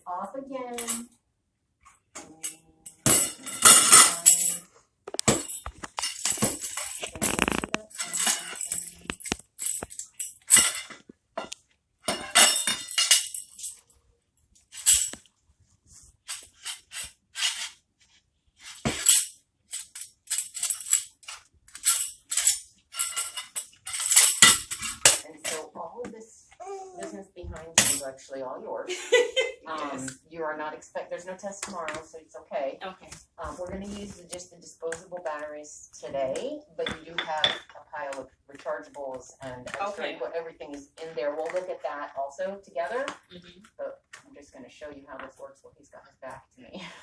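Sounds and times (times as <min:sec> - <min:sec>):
jingling toy rattle shaken: 0:07.8 - 0:10.7.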